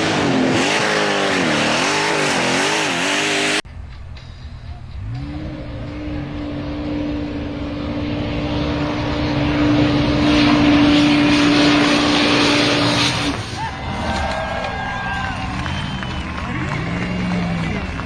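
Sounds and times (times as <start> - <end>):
engine droning at steady revs: 4.2 - 13.6, 15.0 - 18.0.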